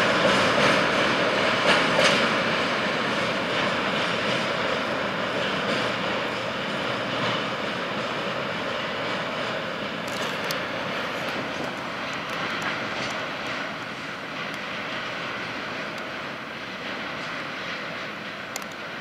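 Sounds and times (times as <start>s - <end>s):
train wheels and engine rumbling: 0.0s - 19.0s
faint high clicks from wheels: 18.4s - 19.0s.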